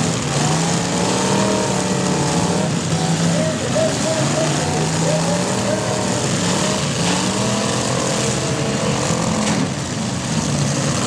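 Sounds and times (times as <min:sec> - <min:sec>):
car engines revving hard: 0:00.0 - 0:11.0.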